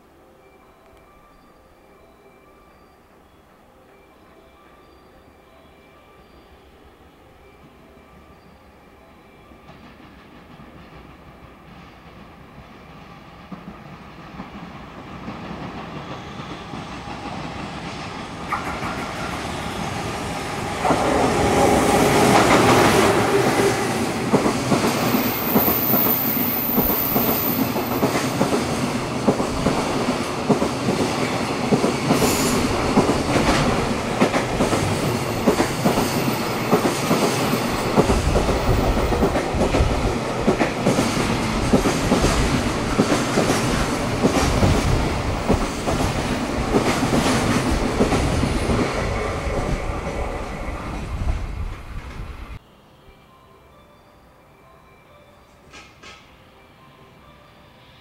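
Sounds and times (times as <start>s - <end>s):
train rumble: 9.6s - 52.6s.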